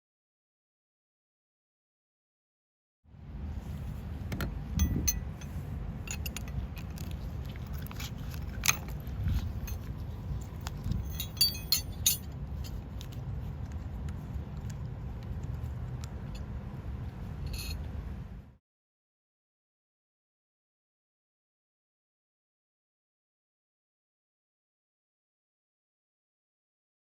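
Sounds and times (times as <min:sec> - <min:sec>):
steady low rumble: 0:03.1 - 0:18.6
metal tools clinking and scraping: 0:04.8 - 0:13.2, 0:17.4 - 0:17.9.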